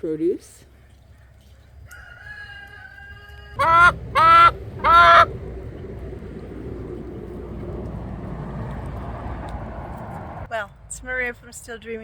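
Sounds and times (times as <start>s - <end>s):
poultry bird honking: 3.5s - 5.4s.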